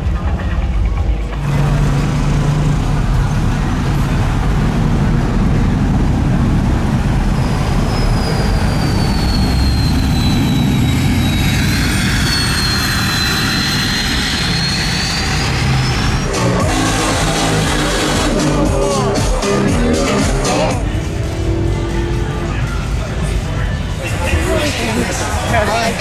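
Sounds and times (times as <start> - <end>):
large engine rumbling: 0.0 - 26.0
high whistling whine: 5.2 - 18.5.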